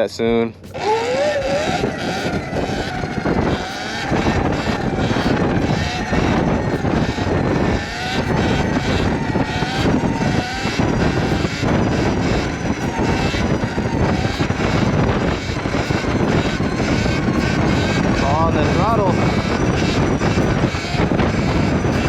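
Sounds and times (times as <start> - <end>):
wind buffeting microphone: 0.0 - 22.0
electric motor whine: 0.6 - 22.0
tyre noise: 0.6 - 22.0.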